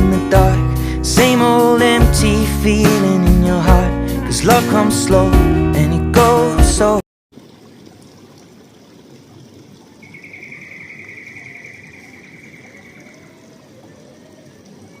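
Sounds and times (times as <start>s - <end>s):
high pulsing trill: 10.0s - 13.2s.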